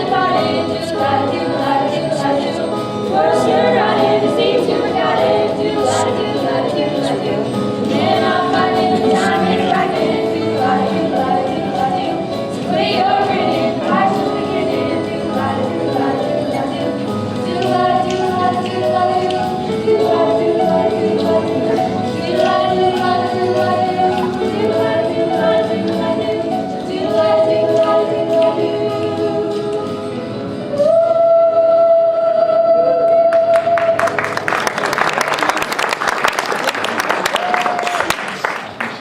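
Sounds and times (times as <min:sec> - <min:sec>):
group singing a musical song: 0:00.0 - 0:34.9
audience applause: 0:33.5 - 0:39.0.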